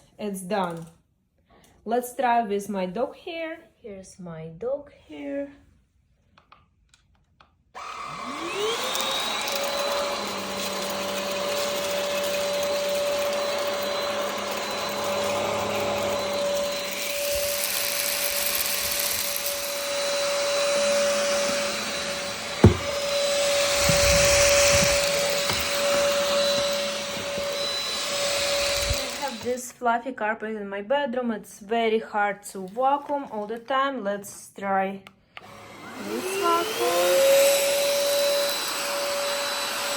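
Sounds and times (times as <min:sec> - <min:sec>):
stick vacuum whining: 0:07.8 - 0:29.6, 0:35.4 - 0:39.9
sharp knock: 0:22.6 - 0:23.0.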